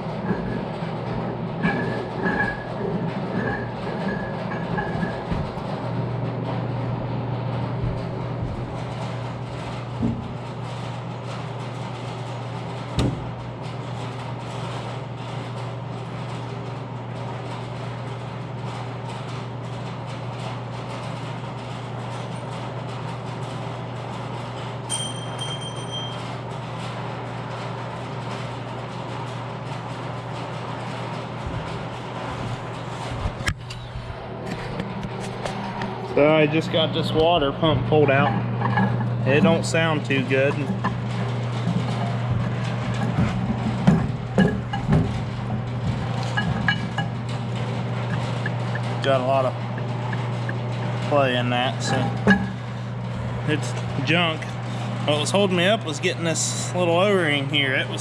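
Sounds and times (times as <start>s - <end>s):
low machine hum: 0.0s - 58.0s
short ringing pings: 24.9s - 26.2s.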